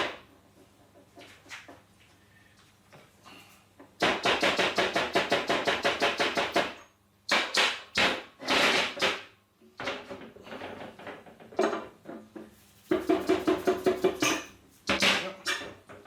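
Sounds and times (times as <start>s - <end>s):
hammer striking metal: 12.9s - 15.2s.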